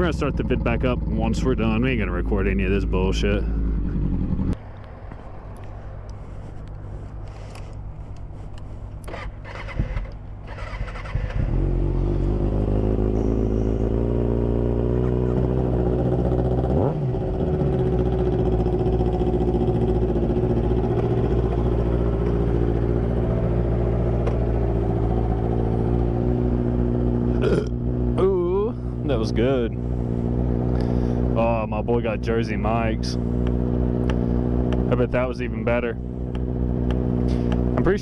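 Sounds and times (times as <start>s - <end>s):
motorcycle engine idling: 0.0s - 4.6s, 9.1s - 38.0s.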